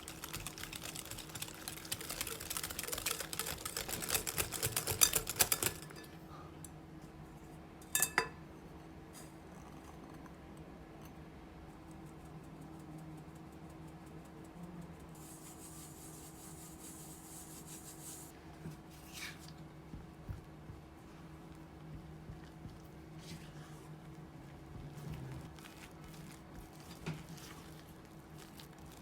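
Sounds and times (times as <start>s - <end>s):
utensil clicking in mixing bowl: 0.0s - 6.0s.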